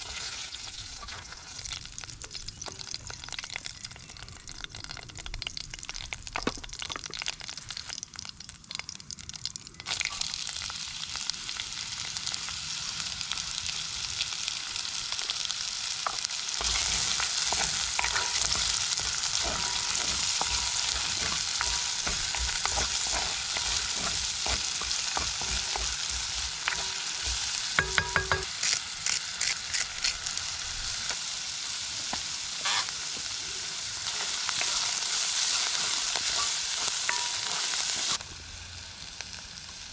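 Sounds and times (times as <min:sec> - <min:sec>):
food sizzling in a pan: 0:00.0 - 0:05.1, 0:09.9 - 0:39.9
utensil scraping a pan: 0:16.6 - 0:28.8, 0:32.6 - 0:33.0, 0:34.1 - 0:38.2.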